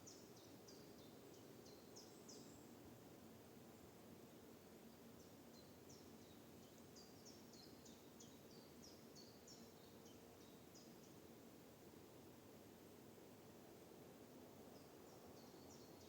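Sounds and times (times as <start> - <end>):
faint songbird chirps: 0.0 - 2.8, 3.6 - 11.4, 14.7 - 16.0
forest background: 0.0 - 16.0.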